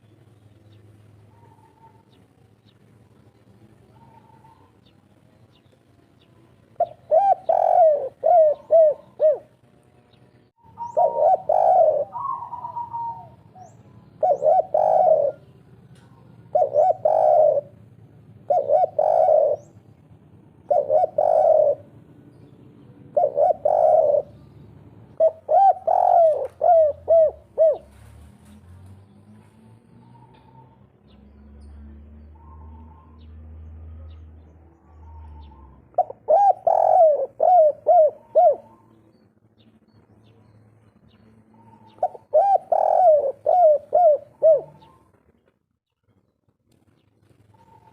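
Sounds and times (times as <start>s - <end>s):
dove cooing: 1.3s - 2.2s, 3.8s - 4.9s, 6.8s - 9.6s, 10.6s - 28.6s, 32.3s - 33.3s, 34.0s - 39.2s, 41.4s - 45.4s, 47.4s - 47.9s.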